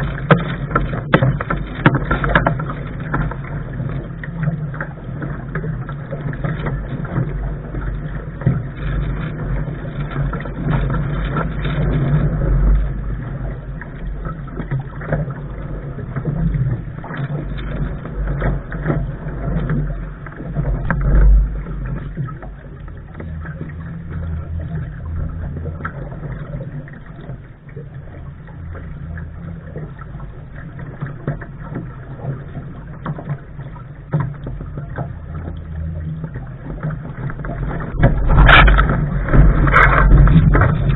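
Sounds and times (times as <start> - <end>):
boat knocks: 0.0 - 40.9
heavy low rumble: 0.0 - 40.9
water and wind rushing at bow: 0.0 - 40.9.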